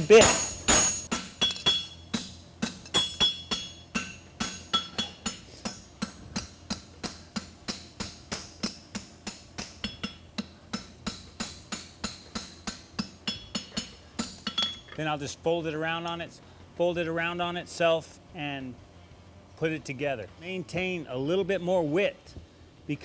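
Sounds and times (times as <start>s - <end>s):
hammer striking steel on anvil: 0.0s - 15.0s.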